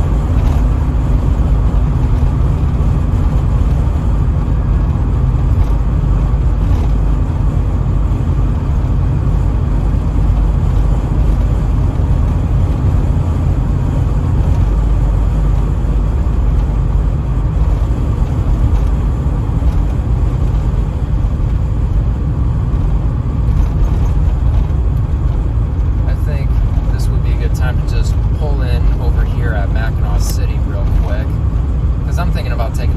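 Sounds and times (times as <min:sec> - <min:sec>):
car engine drone in cabin: 0:00.0 - 0:32.9
tyre and wind noise: 0:00.0 - 0:32.9.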